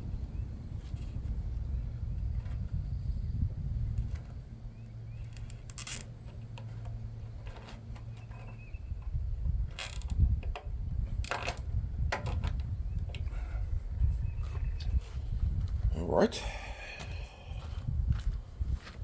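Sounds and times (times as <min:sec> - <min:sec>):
wind on microphone: 0:00.0 - 0:04.6, 0:08.6 - 0:19.0
low steady hum: 0:00.0 - 0:18.8.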